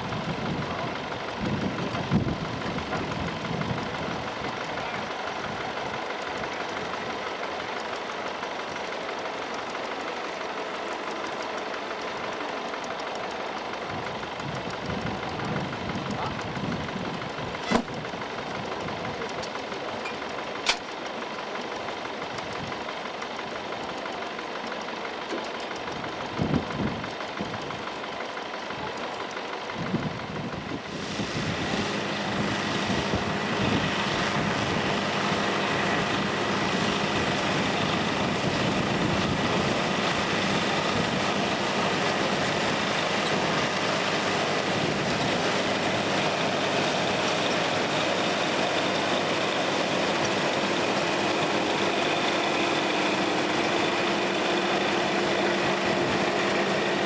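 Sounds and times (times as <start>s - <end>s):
farm machine engine running: 0.0s - 57.0s
sharp click: 20.1s - 20.9s.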